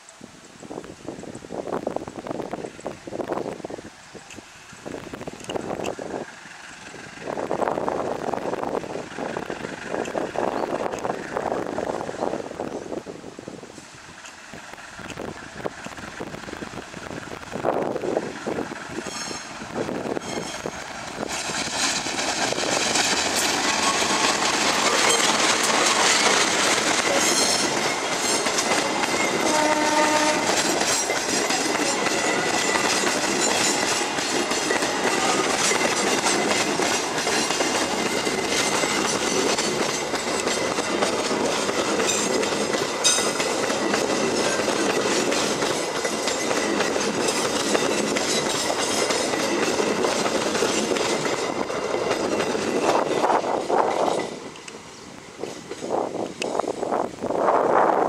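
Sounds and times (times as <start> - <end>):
wheels clattering over rail joints: 17.3 - 54.8
train horn blast: 29.3 - 30.7.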